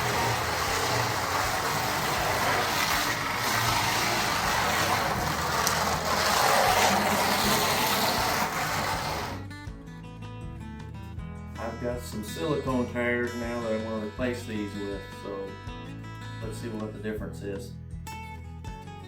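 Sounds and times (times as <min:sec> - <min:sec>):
slot car motor whirring: 0:00.0 - 0:09.4.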